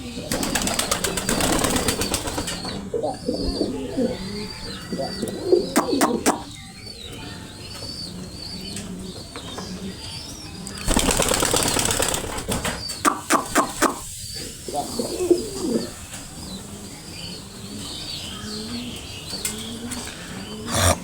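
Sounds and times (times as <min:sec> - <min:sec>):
pigeons cooing: 0:00.0 - 0:21.0
wings flapping: 0:00.3 - 0:02.8, 0:10.8 - 0:14.0.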